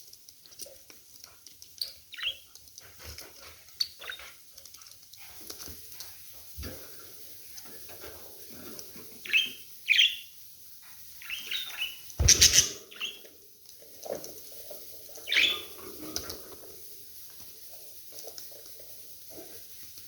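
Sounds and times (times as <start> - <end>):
budgerigars chirping: 9.3 - 10.2, 11.2 - 13.2, 15.2 - 15.6.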